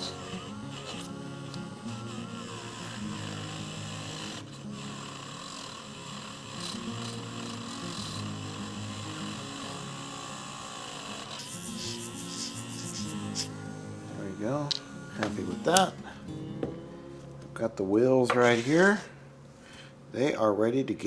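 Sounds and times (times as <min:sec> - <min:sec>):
small power tool whining: 0:00.0 - 0:16.7
background music: 0:00.0 - 0:19.4.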